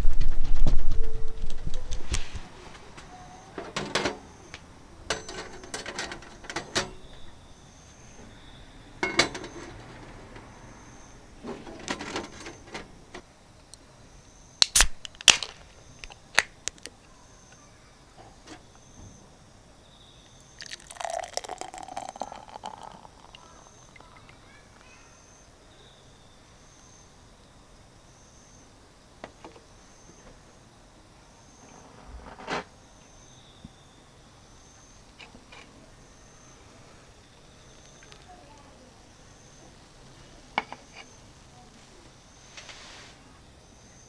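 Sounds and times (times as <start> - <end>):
cooking gear clinking and clattering: 3.5 - 4.4, 5.0 - 7.6, 8.3 - 13.2, 20.6 - 24.2.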